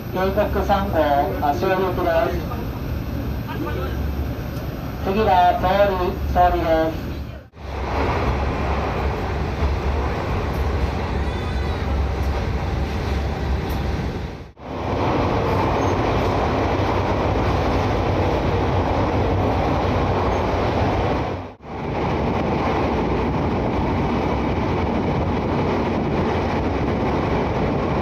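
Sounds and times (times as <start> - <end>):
train wheels rumbling in tunnel: 0.0 - 28.0.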